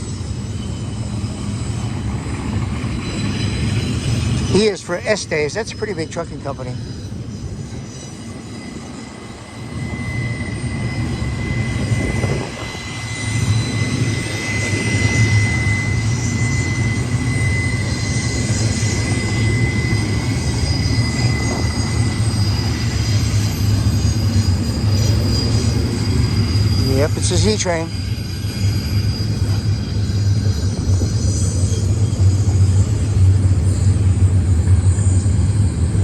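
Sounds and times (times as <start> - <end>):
freight train wheels rumbling on rail: 0.0 - 36.0.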